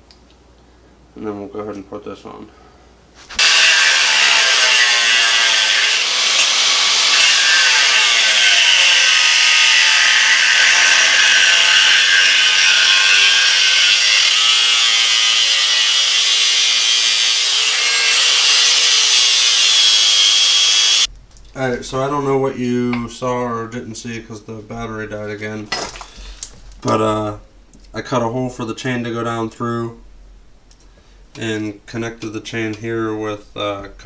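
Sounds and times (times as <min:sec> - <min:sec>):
power tool cutting: 0:03.4 - 0:21.1.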